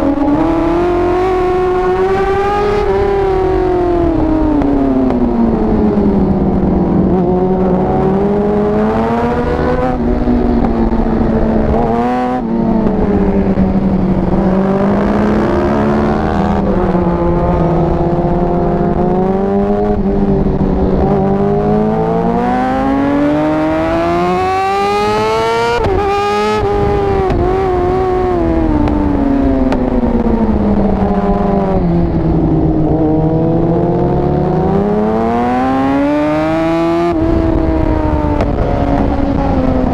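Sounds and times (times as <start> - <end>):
motorcycle engine at full throttle: 0.0 - 39.9.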